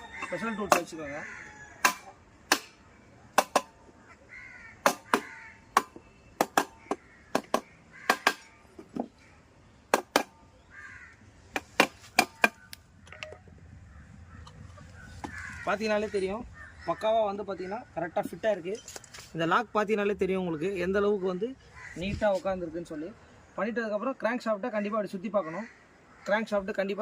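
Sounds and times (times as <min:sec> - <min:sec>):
crows cawing: 0:00.0 - 0:02.9, 0:03.5 - 0:17.7, 0:20.3 - 0:22.5, 0:24.8 - 0:26.7
sharp metal knocks: 0:00.2 - 0:01.0, 0:01.8 - 0:03.8, 0:04.8 - 0:09.2, 0:09.9 - 0:10.4, 0:11.5 - 0:13.4.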